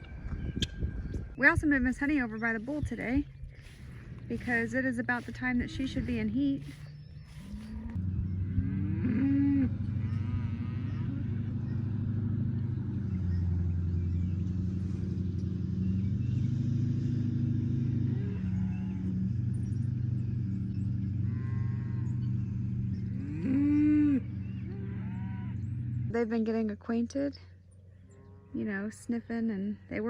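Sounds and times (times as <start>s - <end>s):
steady low drone: 0.0s - 30.0s
cattle mooing: 3.6s - 14.0s, 17.4s - 26.1s.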